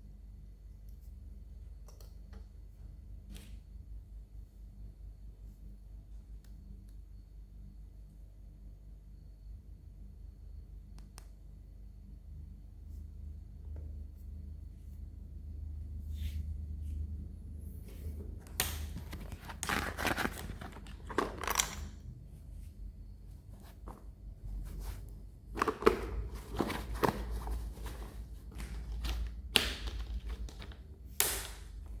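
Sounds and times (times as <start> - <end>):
plastic packaging crinkling: 18.8 - 22.0, 25.5 - 31.1.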